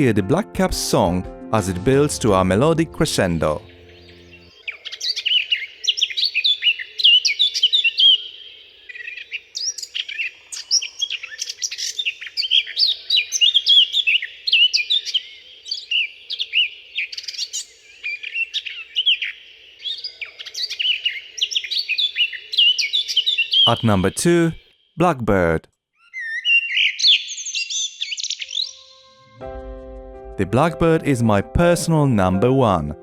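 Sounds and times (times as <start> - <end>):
bird warbling song: 3.2 - 25.0, 25.9 - 29.2.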